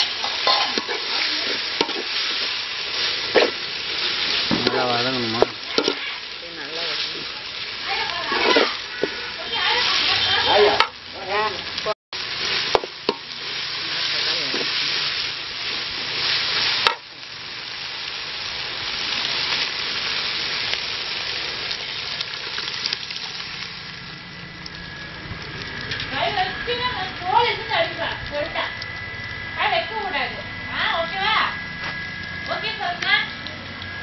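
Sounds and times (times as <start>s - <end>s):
vegetables sizzling in oil: 0.0s - 34.0s
metal spatula scraping pan: 8.2s - 10.9s.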